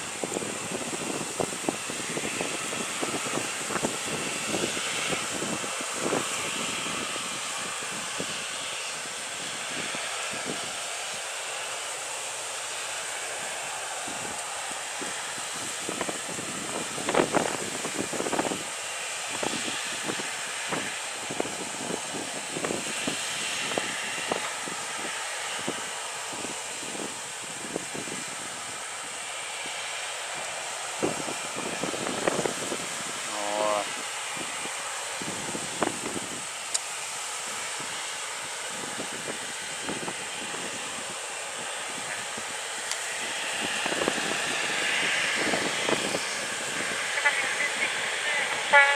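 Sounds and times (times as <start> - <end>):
airliner cabin hiss: 0.0 - 48.9.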